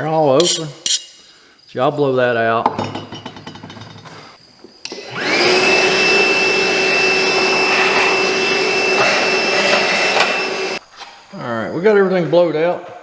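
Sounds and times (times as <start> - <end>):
vacuum motor whining: 4.8 - 10.8.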